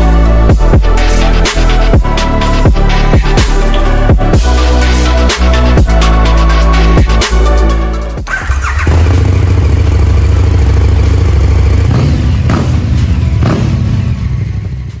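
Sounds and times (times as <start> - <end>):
engine starting: 8.2 - 9.2
motorcycle engine idling: 8.2 - 15.0.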